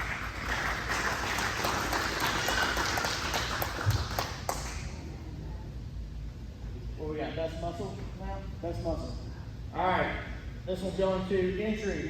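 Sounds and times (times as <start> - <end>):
crowd applauding: 0.0 - 4.9.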